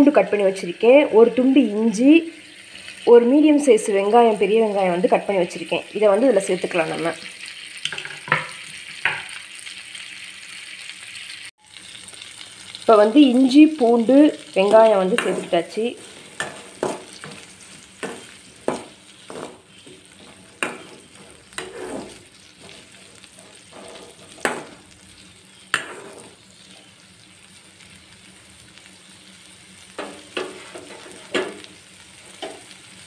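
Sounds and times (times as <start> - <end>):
food sizzling in butter: 0.0 - 33.0
metal spatula scraping pan: 15.1 - 24.8, 25.7 - 26.4, 30.0 - 31.7.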